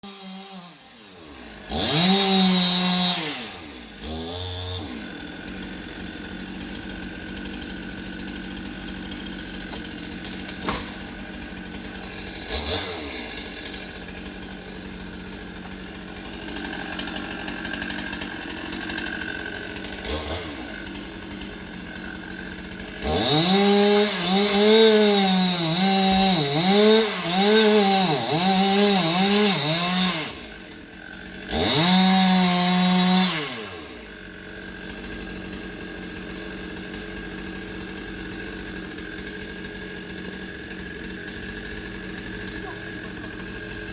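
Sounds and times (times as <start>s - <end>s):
chainsaw revving: 0.0s - 43.9s
sharp knocks: 9.7s - 11.1s.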